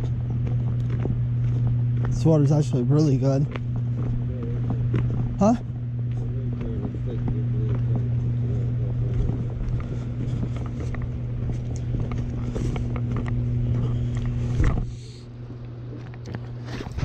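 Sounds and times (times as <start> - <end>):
machine humming: 0.0 - 17.0
handling clicks and rustling: 6.0 - 14.9.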